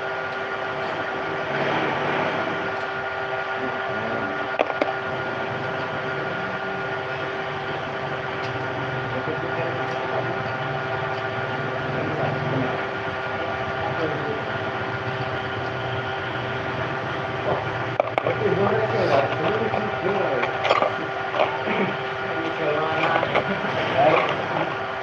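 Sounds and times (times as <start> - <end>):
mechanical hum: 0.0 - 25.0
faint indistinct voices: 3.5 - 25.0.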